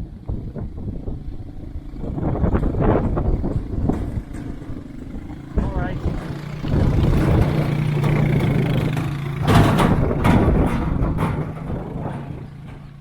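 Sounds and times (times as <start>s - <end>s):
off-road vehicle passing: 0.0s - 13.0s.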